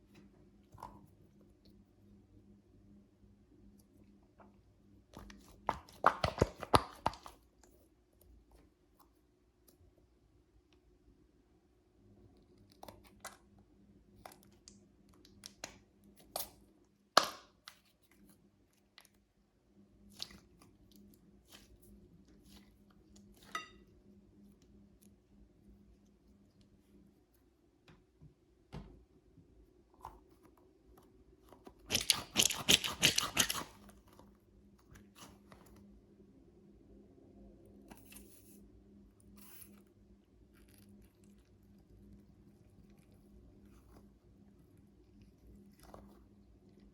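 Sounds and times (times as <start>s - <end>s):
sharp snips and clicks: 31.9s - 33.8s.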